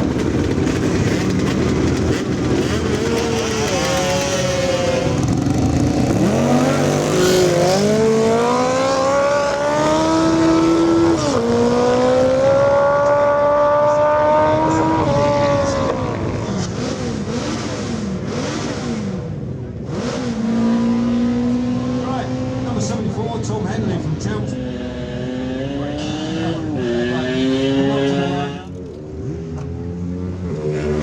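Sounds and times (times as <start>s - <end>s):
motorcycle accelerating: 0.0s - 31.0s.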